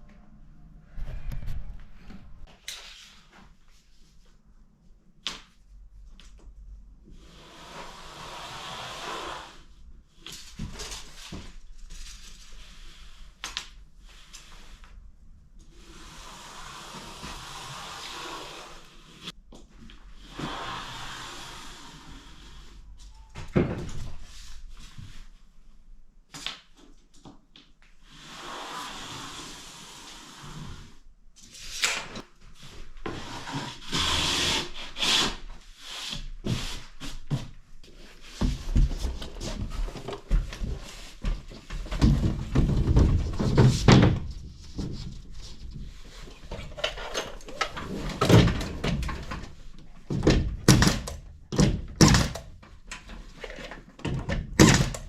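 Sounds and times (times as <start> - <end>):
wood knocks and scrapes: 38.3 - 52.2.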